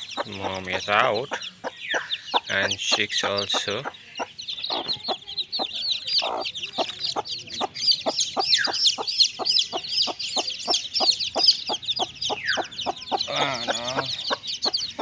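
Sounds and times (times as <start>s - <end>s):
chicks peeping: 0.0s - 15.0s
hen clucking: 0.0s - 15.0s.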